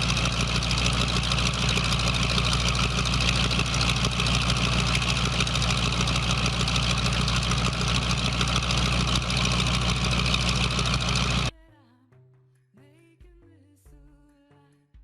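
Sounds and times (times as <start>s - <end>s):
car engine idling: 0.0s - 11.5s.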